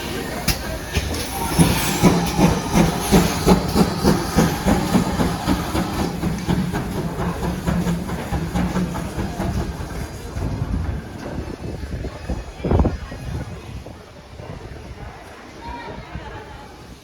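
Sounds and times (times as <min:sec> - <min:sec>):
steam hiss: 0:00.0 - 0:10.7
steam locomotive chuffing: 0:00.0 - 0:12.2.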